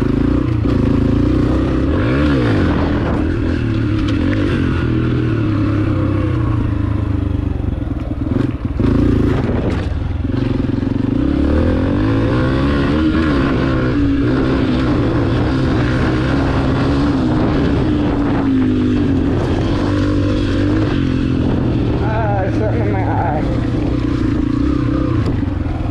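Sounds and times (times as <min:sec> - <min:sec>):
pit bike engine revving: 0:00.0 - 0:25.9
clatter: 0:02.7 - 0:04.6, 0:07.9 - 0:11.1.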